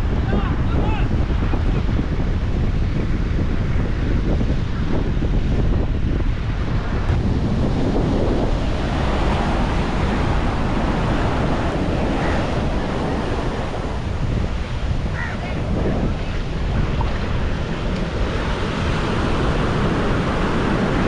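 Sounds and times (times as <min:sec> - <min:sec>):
wind buffeting microphone: 0:00.0 - 0:21.0
sea waves breaking: 0:06.5 - 0:21.0.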